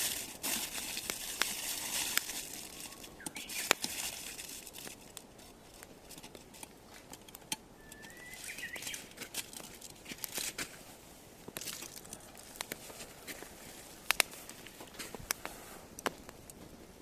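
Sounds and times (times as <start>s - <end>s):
firewood crackling and popping: 0.0s - 17.0s
rising bird chirp: 2.7s - 3.8s, 7.8s - 9.2s.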